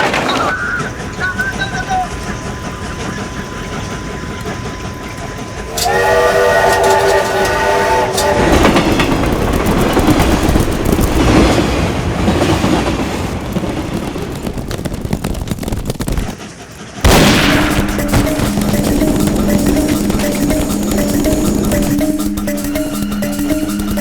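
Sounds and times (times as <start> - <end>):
train rumble and wheel clatter: 0.0 - 24.0
steam train whistle: 0.5 - 10.4
music: 17.4 - 24.0.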